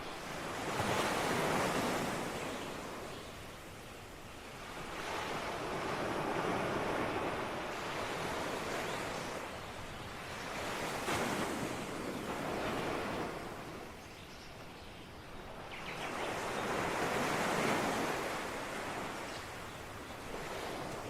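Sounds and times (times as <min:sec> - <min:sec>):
ocean waves breaking: 0:04.6 - 0:14.0.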